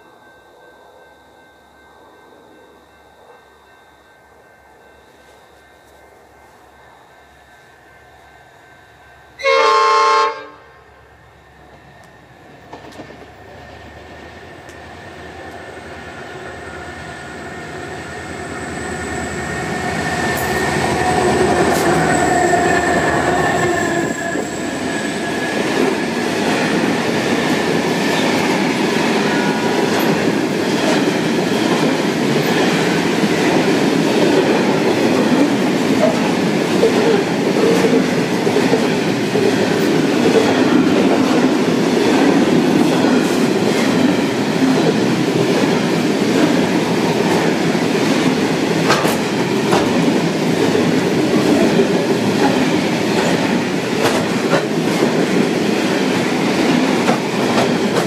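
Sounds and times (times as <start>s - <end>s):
diesel train approaching: 0.0s - 58.0s
train horn blast: 9.4s - 11.0s.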